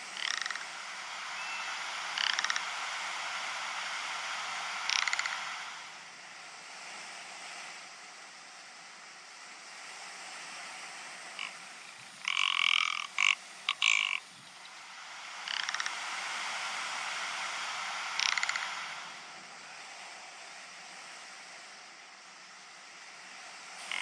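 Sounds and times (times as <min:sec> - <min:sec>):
ptarmigan rattling croaks: 0:00.0 - 0:00.8, 0:02.0 - 0:02.8, 0:04.8 - 0:05.6, 0:11.4 - 0:16.1, 0:18.0 - 0:19.1, 0:23.8 - 0:24.0
steady hiss: 0:00.0 - 0:24.0.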